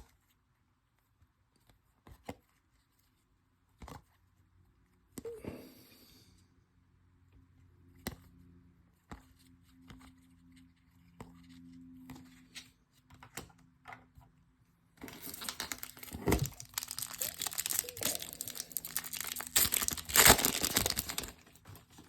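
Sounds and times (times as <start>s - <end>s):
foil wrapper crinkled and torn: 15.0s - 21.7s.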